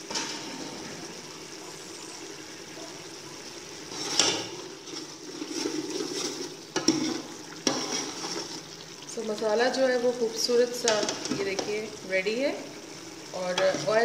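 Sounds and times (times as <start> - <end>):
masala sizzling in oil: 0.0 - 14.0.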